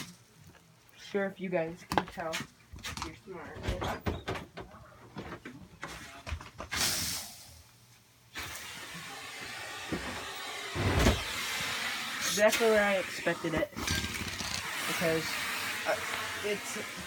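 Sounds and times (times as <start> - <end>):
vacuum suction hiss: 6.7 - 17.0
short rush of air: 6.8 - 7.5
thump: 9.9 - 11.2.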